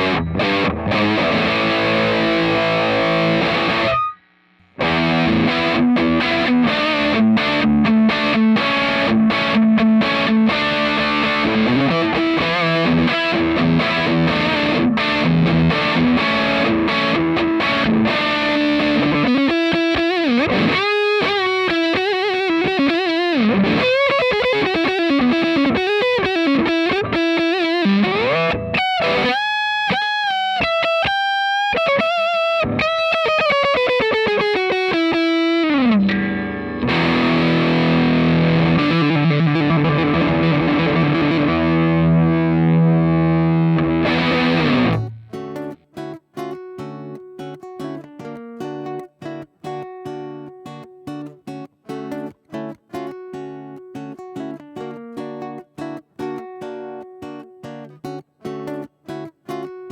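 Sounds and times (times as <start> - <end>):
distorted electric guitar chords: 0.0 - 59.9
electric guitar lead lines: 0.0 - 59.9.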